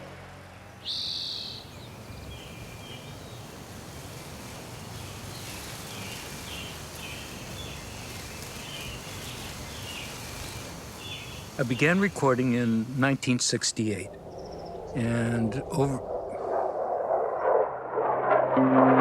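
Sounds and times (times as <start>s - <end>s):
loud high bird call: 0.8s - 1.7s
steady background hiss: 0.9s - 16.4s.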